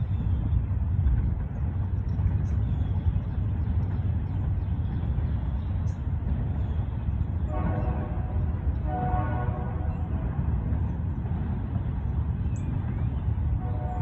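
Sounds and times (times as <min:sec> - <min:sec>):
freight train rumbling by: 0:00.0 - 0:14.0
locomotive air horn: 0:07.5 - 0:09.9, 0:13.6 - 0:14.0.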